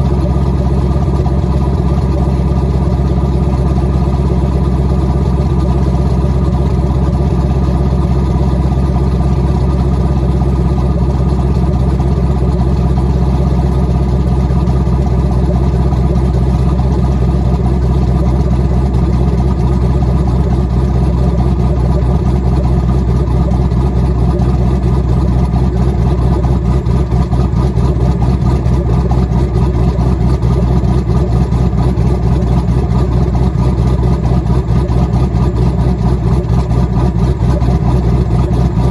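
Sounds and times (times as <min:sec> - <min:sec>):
car engine idling with uneven lope: 0:00.0 - 0:38.9.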